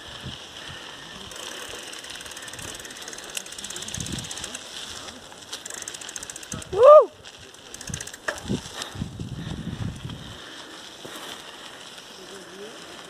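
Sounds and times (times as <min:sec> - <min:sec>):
bicycle freewheel ticking: 0:00.0 - 0:13.0.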